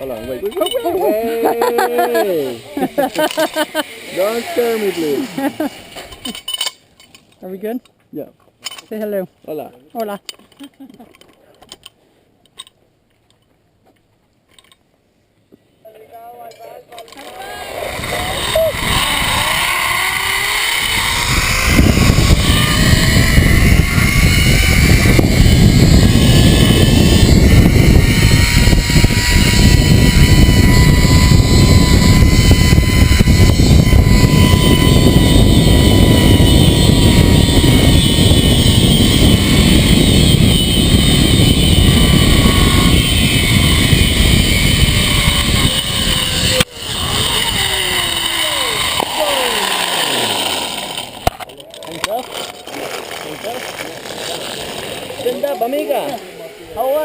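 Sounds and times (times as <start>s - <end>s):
zip line pulley whine on cable: 0.5s - 6.7s, 17.1s - 57.0s
wind rush on microphone: 17.9s - 48.2s.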